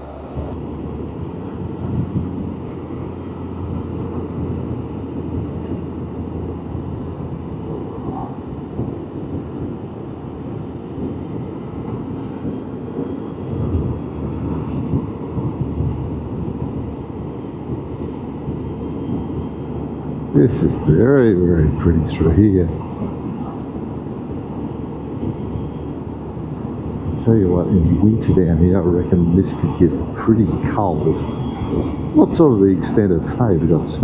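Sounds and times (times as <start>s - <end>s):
engine noise: 0.0s - 34.0s
road noise: 0.0s - 34.0s
wind buffeting microphone: 0.0s - 34.0s.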